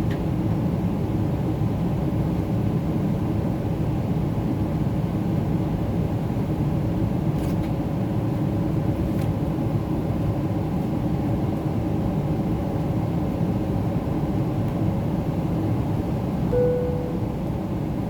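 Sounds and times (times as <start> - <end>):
airplane cabin engine rumble: 6.0 - 18.0
faint steady hum: 16.5 - 18.0.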